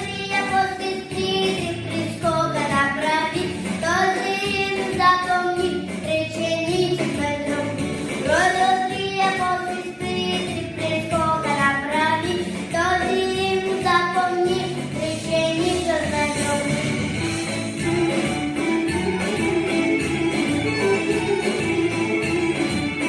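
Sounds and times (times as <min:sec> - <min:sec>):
girl singing: 0:00.0 - 0:17.0
musical accompaniment: 0:00.0 - 0:23.0.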